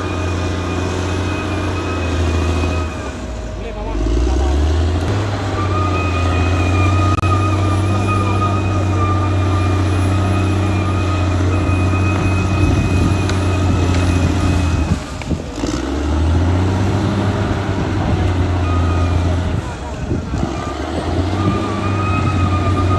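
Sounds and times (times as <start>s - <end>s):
high whine: 0.0s - 15.9s
bulldozer diesel engine running: 0.0s - 22.9s.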